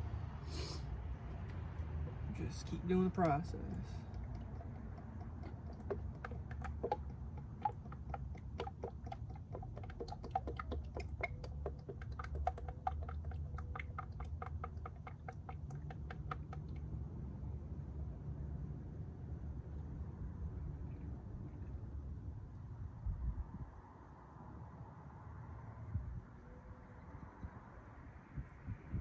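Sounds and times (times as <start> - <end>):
steady low hum: 0.0 - 18.0
oil glugging into a funnel: 0.4 - 16.9.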